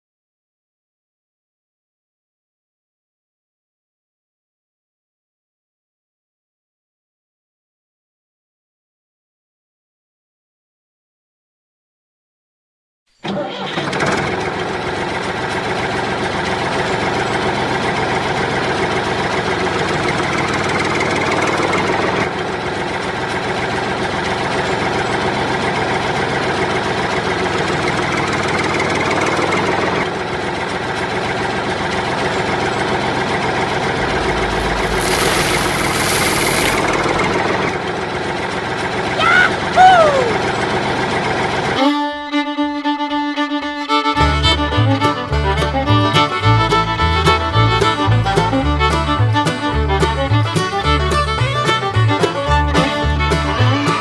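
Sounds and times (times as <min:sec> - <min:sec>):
small engine running: 0:13.2 - 0:54.0
burst of hiss: 0:34.2 - 0:37.0.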